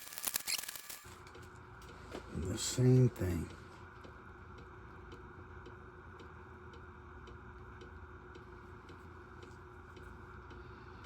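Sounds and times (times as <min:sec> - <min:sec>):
low room hum: 0:00.0 - 0:11.0
faint clock ticking: 0:03.3 - 0:10.7.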